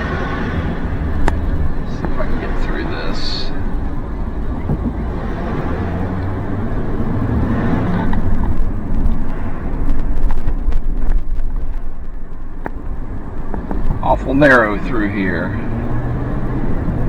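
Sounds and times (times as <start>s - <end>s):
engine and road rumble: 0.0s - 17.0s
knocks and rattles: 3.5s - 5.1s.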